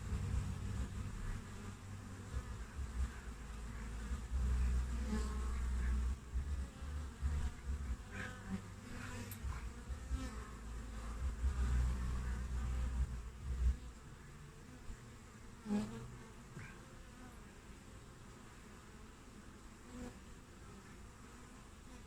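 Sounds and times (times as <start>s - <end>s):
low steady rumble: 0.0s - 14.3s
bees buzzing at a hive: 0.0s - 22.0s
single bee flying close: 0.0s - 22.0s.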